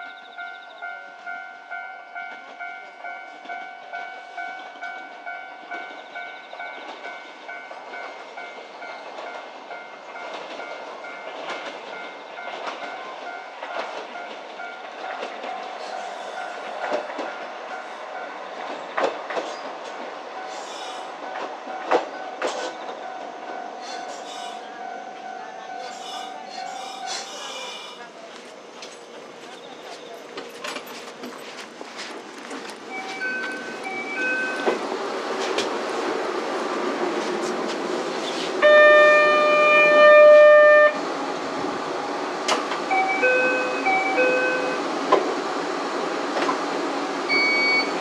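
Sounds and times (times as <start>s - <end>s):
level-crossing warning bell: 0.0s - 18.5s, 20.3s - 27.4s, 32.6s - 34.9s, 38.6s - 41.0s, 42.8s - 44.9s, 47.3s - 48.0s
train wheels clicking over rail joints: 2.2s - 24.6s, 25.8s - 38.6s, 42.4s - 44.4s.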